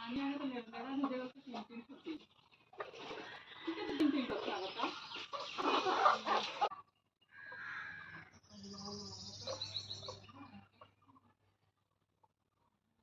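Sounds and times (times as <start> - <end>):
birds calling: 0.0 - 11.2
high bird chirps: 7.2 - 10.6.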